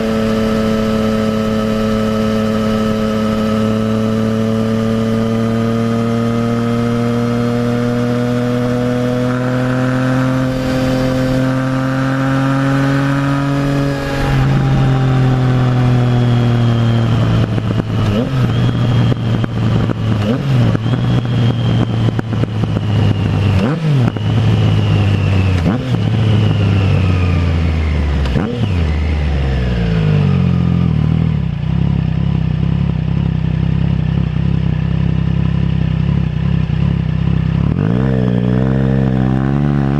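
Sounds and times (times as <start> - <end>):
motorcycle engine accelerating: 0.0 - 39.9
exhaust crackling and popping: 13.6 - 25.8
motorcycle engine idling: 31.5 - 37.7.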